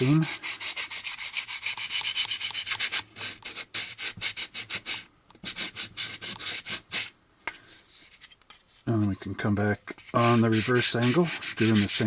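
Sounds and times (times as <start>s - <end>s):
sandpaper rubbing on plastic: 0.0s - 7.1s, 9.9s - 12.0s.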